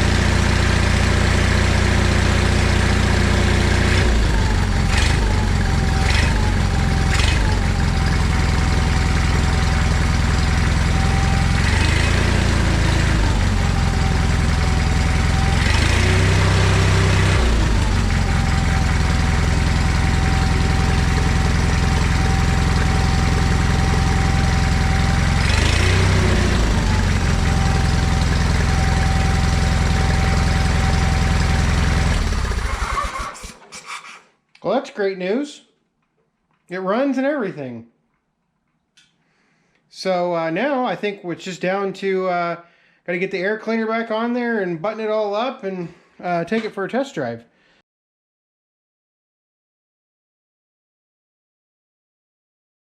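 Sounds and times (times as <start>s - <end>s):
garden tractor engine running: 0.0s - 34.1s.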